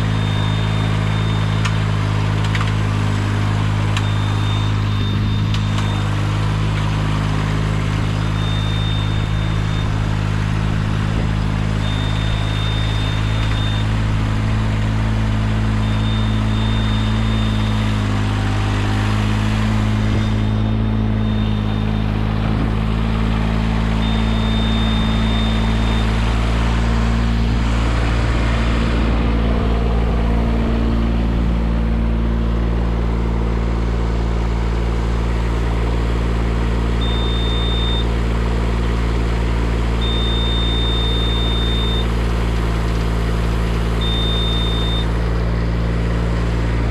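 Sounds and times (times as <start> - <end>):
high electronic beep: 0.0 - 1.8, 4.0 - 6.2, 8.1 - 10.2, 10.8 - 14.0, 15.7 - 17.9, 20.0 - 22.2, 23.9 - 26.6, 37.0 - 38.1, 40.0 - 42.2, 44.0 - 45.2
engine running: 0.0 - 46.9.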